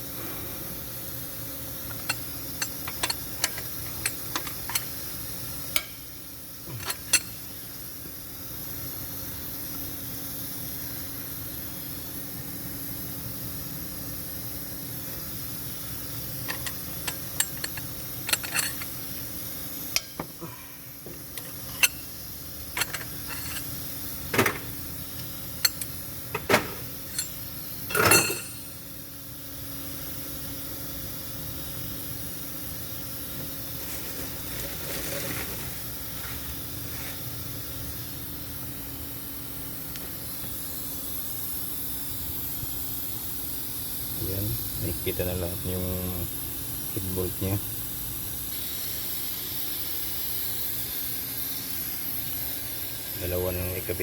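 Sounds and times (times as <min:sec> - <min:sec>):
steady background hum: 0:00.0 - 0:54.0
metal tools clinking: 0:02.0 - 0:04.9, 0:06.8 - 0:07.4, 0:16.4 - 0:19.0, 0:21.3 - 0:22.1, 0:22.7 - 0:23.8, 0:25.6 - 0:28.8
metallic rattle: 0:16.5 - 0:19.0, 0:22.7 - 0:23.8, 0:25.6 - 0:28.8.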